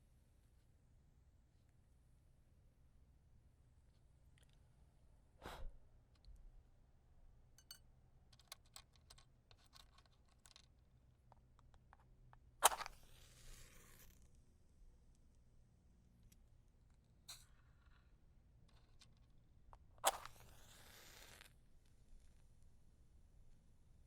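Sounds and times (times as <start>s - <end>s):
small clicks and taps: 7.6s - 13.0s
match struck and flaring: 12.6s - 14.3s, 20.0s - 21.6s
brief scrape: 20.0s - 21.5s.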